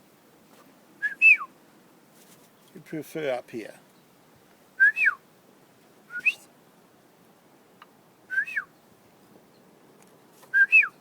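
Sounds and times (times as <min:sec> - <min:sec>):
person whistling a bird call: 0:01.0 - 0:01.5, 0:04.8 - 0:05.2, 0:06.1 - 0:06.5, 0:08.3 - 0:08.7, 0:10.5 - 0:11.0.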